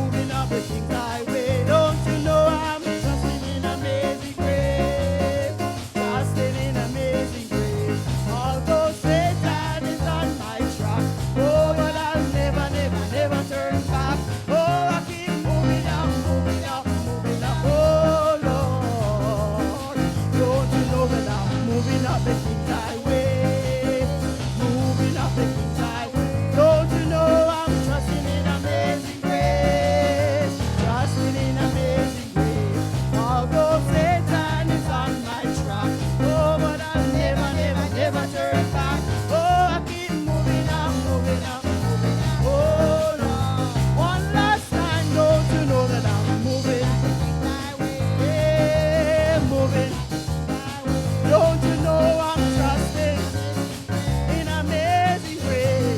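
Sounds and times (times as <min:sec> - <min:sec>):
band with repeating bass line: 0:00.0 - 0:55.9
person singing: 0:00.0 - 0:55.9.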